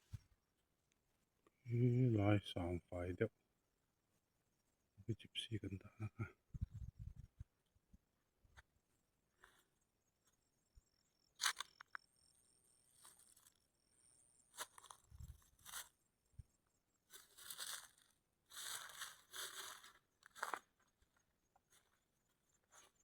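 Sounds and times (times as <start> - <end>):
dry rustling and crunching: 14.5 - 16.0, 17.1 - 21.0.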